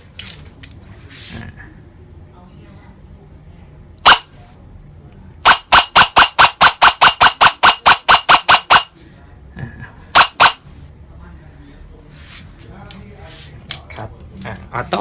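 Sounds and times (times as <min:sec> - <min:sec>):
airsoft rifle shots: 0:04.0 - 0:04.3, 0:05.4 - 0:08.9, 0:10.2 - 0:10.6.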